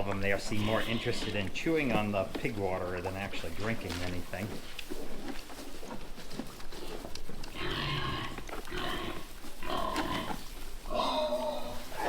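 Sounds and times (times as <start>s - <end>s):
pigs squealing and grunting: 0.0s - 2.1s, 6.8s - 12.0s.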